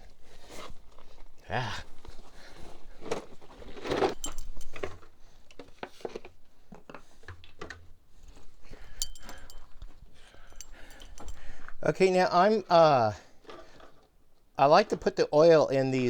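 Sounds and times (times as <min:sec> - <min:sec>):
small hard objects clinking: 0:03.7 - 0:05.0, 0:08.7 - 0:11.7.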